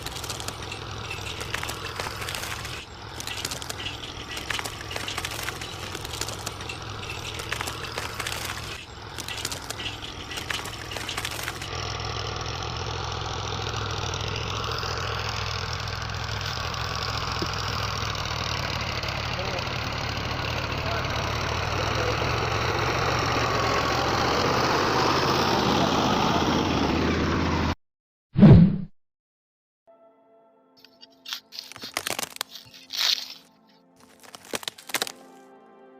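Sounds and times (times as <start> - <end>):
small motor clicking and rattling: 0.0 - 24.2, 30.8 - 35.2.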